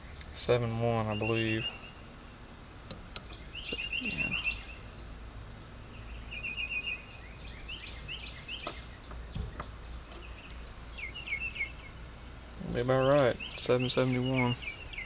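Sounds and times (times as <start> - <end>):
outdoor background noise: 0.0 - 15.0
songbird chirping: 0.0 - 15.0.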